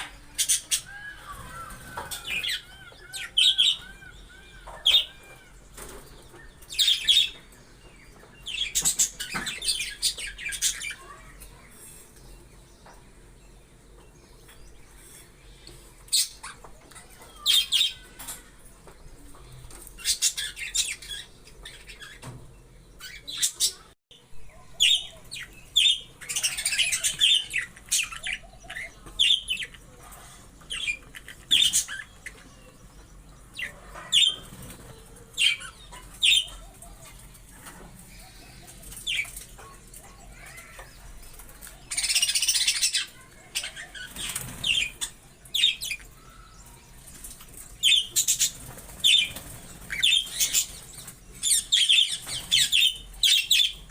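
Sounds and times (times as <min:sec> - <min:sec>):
wings flapping: 0:44.0 - 0:45.0, 0:47.1 - 0:51.2.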